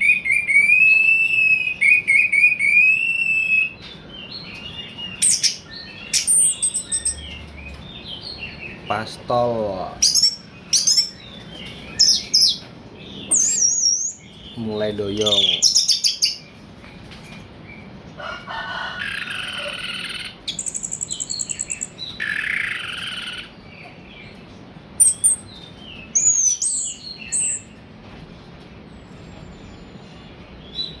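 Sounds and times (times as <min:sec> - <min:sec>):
high bird whistles: 0:00.0 - 0:03.8, 0:13.3 - 0:14.3, 0:19.0 - 0:23.5, 0:25.0 - 0:27.7.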